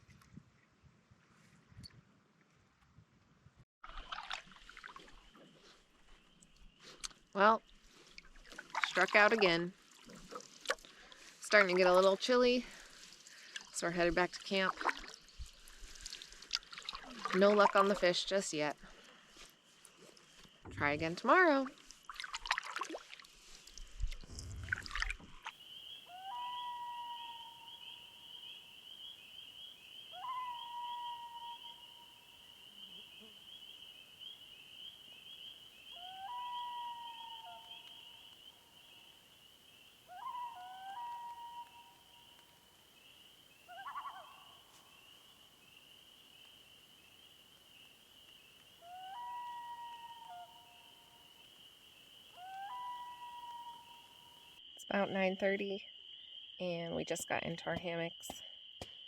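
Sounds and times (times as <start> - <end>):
low rumble: 24.0 - 25.4
loons calling: 25.5 - 42.8, 43.5 - 45.0, 48.8 - 54.6.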